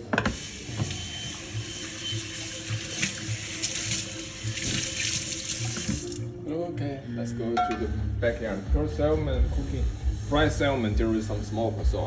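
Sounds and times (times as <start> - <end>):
tap water splashing into sink: 0.1 - 1.5, 2.2 - 6.3.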